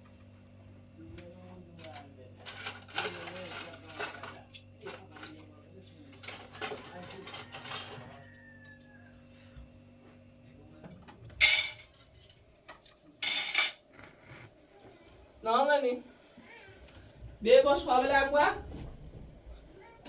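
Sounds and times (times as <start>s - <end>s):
dishes and cutlery clinking: 1.8s - 8.9s, 11.4s - 14.1s.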